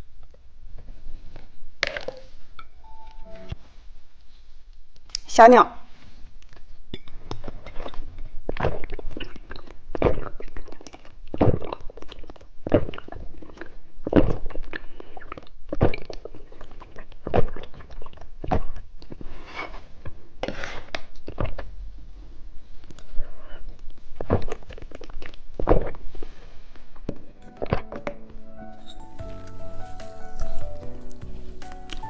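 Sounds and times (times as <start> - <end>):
crunching and chewing candy: 6.4 - 21.9, 22.8 - 27.8.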